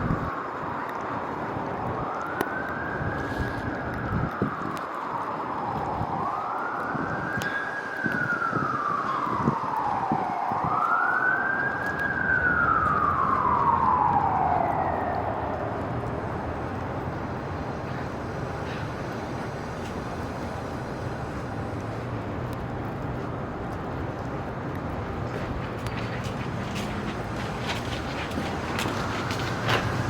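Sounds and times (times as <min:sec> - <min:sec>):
street noise: 0:00.0 - 0:30.0
emergency siren wailing: 0:00.1 - 0:30.0.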